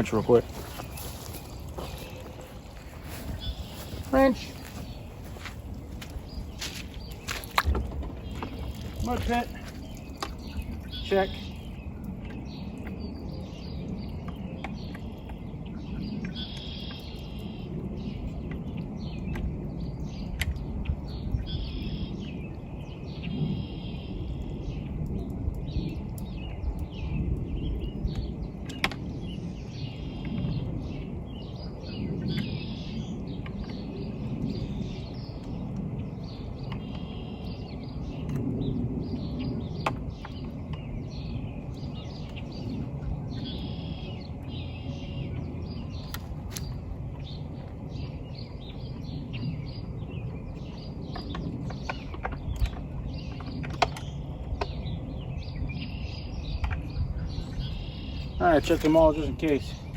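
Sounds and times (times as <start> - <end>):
birds chirping: 0.0 - 59.9
low background rumble: 0.0 - 59.9.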